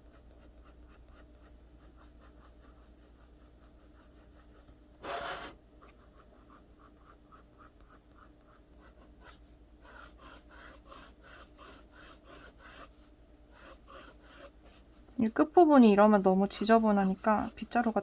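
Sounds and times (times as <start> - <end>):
pencil drawing on paper: 0.0 - 18.0.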